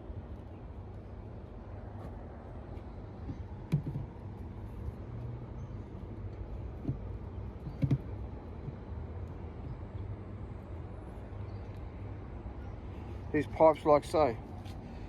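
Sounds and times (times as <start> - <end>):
steady low rumble: 0.0 - 15.0
knocks and clatters of pipes: 3.2 - 4.2, 6.8 - 8.9.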